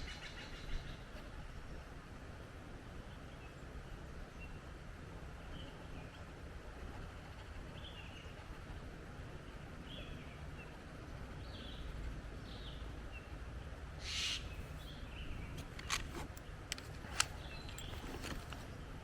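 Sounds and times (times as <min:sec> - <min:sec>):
faint bird chirps: 0:14.0 - 0:15.6
sharp clicks: 0:14.6 - 0:18.7.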